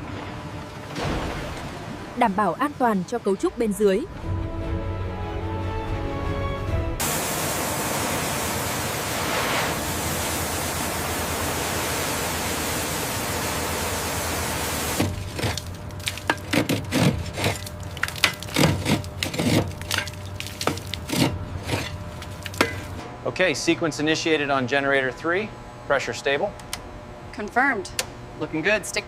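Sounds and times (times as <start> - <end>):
steady rushing hiss: 7.0 - 15.0.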